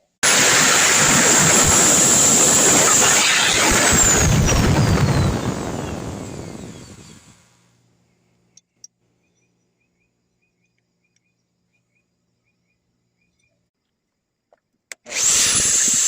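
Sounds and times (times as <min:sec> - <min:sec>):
power drill whine spinning down: 0:00.2 - 0:07.7, 0:15.0 - 0:16.0
faint bird chirps: 0:05.0 - 0:14.3
low steady hum: 0:05.0 - 0:14.4.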